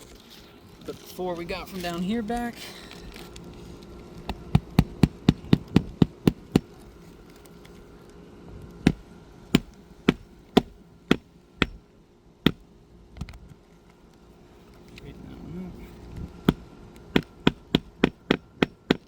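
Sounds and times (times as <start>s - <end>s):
hammer driving nails into shingle: 4.3s - 6.8s, 9.6s - 11.8s, 16.4s - 19.0s.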